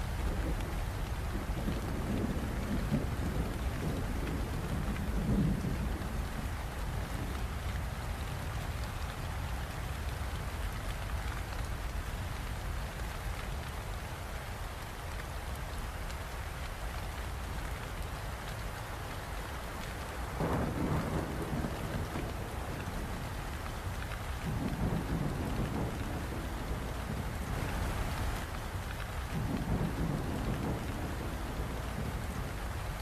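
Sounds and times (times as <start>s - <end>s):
rumble of thunder: 0.0s - 7.8s, 20.3s - 33.0s
steady rain: 0.0s - 33.0s.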